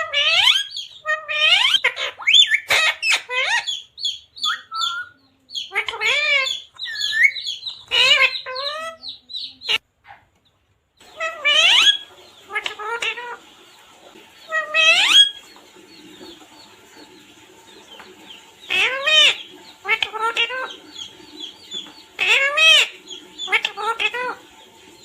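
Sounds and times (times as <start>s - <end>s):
parrot squawking: 0.0s - 10.3s, 11.0s - 13.4s, 14.4s - 15.6s, 18.6s - 24.5s.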